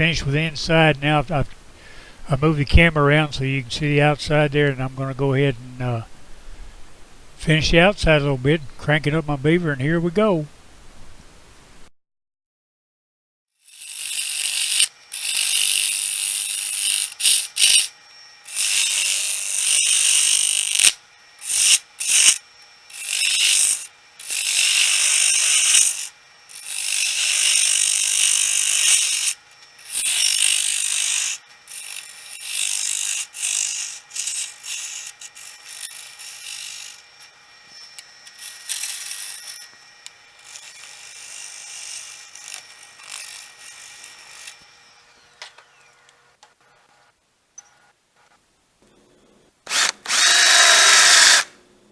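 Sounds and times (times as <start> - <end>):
power carving tool grinding wood: 13.6 - 45.0, 49.7 - 51.5.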